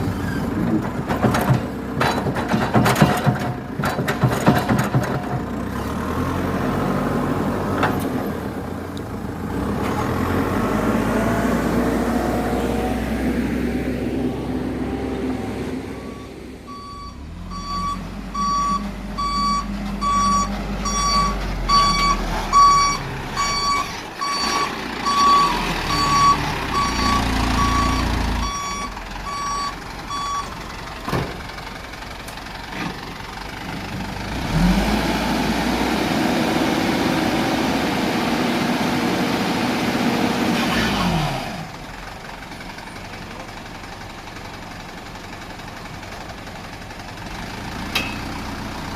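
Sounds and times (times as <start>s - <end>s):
diesel truck engine running: 0.0s - 48.9s
reverse alarm beeping: 16.0s - 30.6s.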